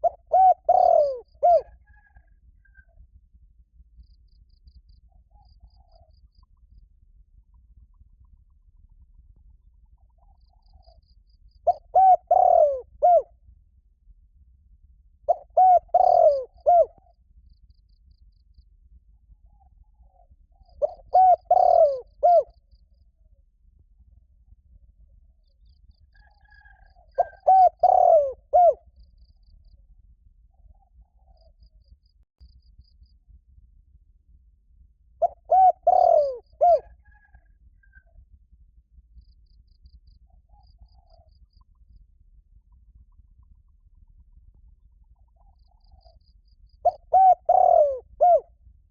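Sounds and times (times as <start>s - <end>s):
dove cooing: 0.0s - 2.8s, 11.6s - 13.3s, 15.3s - 17.1s, 20.0s - 22.6s, 26.2s - 28.8s, 35.2s - 38.0s, 46.8s - 48.5s.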